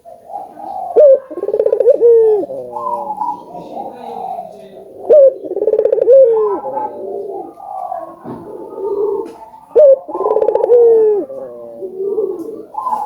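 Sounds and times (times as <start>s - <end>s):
dove loud trilling call: 0.0s - 13.0s
doves cooing: 0.0s - 13.0s.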